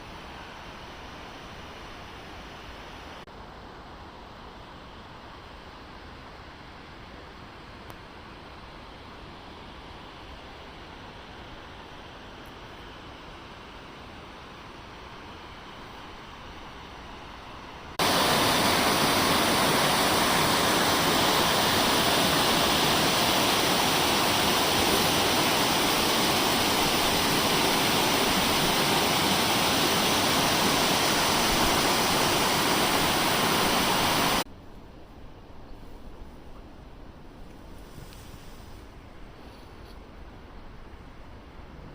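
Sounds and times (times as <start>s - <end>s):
rushing falling water: 17.9s - 34.5s.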